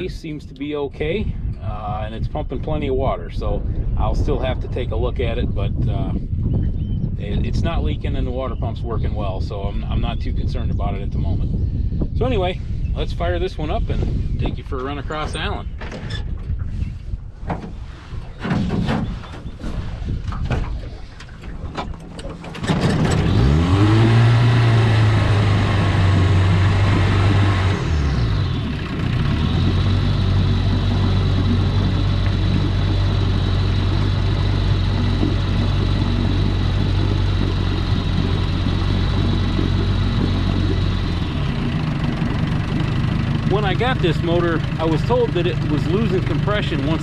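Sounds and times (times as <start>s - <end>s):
outboard motor starting and running: 19.1s - 47.0s
knocks and clatters: 20.2s - 23.4s, 28.9s - 41.0s.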